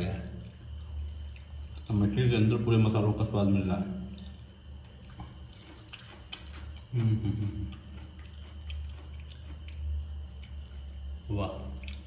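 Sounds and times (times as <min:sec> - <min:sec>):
person chewing crispy food: 0:00.2 - 0:02.3, 0:04.0 - 0:12.0
wet mouth clicks: 0:04.1 - 0:12.0.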